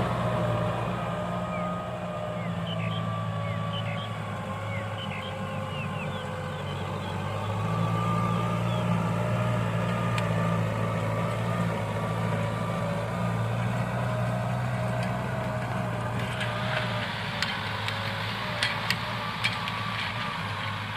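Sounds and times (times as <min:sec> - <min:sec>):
tractor engine running: 0:00.0 - 0:20.9.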